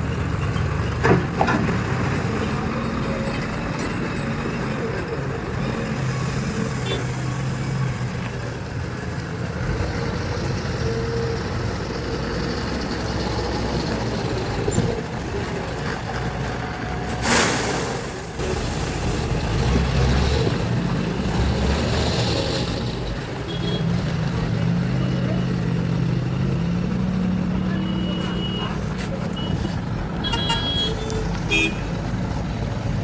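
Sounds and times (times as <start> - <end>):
diesel engine revving under load: 9.4 - 30.2.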